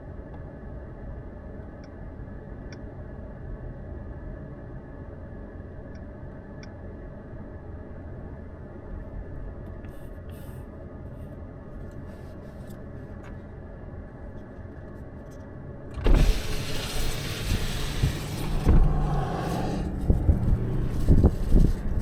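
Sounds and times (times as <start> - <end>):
road hum inside car: 0.0 - 22.0
loud rushing noise: 16.1 - 22.0.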